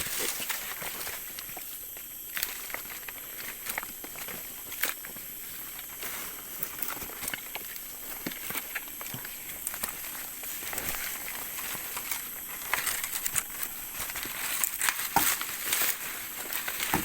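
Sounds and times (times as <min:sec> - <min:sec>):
footsteps on leaf litter: 0:00.0 - 0:17.0
insects droning: 0:00.0 - 0:17.0
twigs snapping underfoot: 0:10.8 - 0:17.0.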